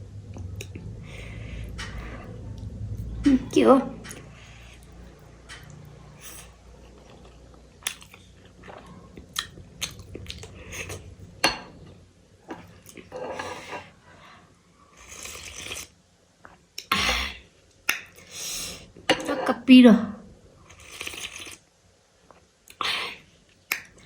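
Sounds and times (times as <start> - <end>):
crunchy food being chewed: 6.9 - 11.1.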